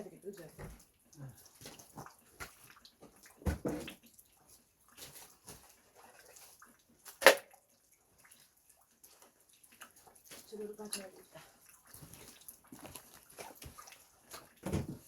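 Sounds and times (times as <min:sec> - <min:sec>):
sharp crack of wood: 0:07.2 - 0:07.4.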